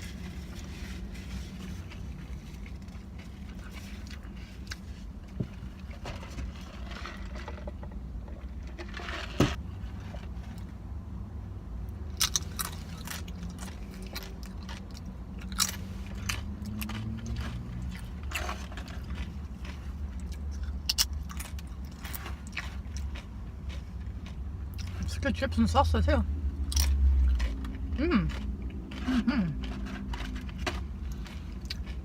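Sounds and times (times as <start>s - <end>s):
chewing and biting: 12.1s - 25.2s, 26.6s - 32.0s
tortilla chips crunching: 12.1s - 25.2s, 26.6s - 32.0s.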